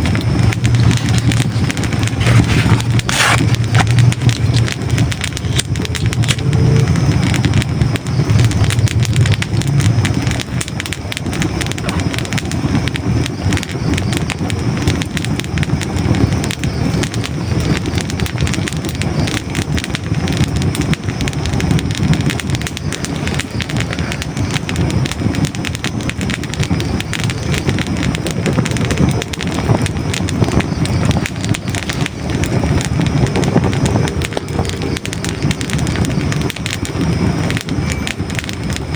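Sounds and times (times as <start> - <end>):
fire crackling and popping: 0.0 - 38.9.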